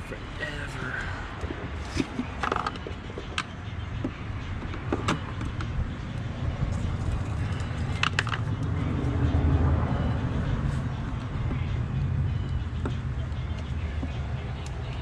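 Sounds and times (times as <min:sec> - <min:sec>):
sharp clicks and knocks: 0:07.5 - 0:08.7.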